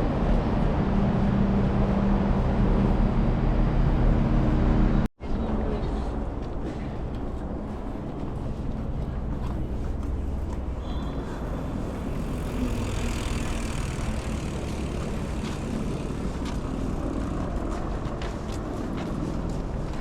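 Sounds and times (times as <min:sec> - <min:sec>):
moving vehicle rumble: 0:00.0 - 0:20.0.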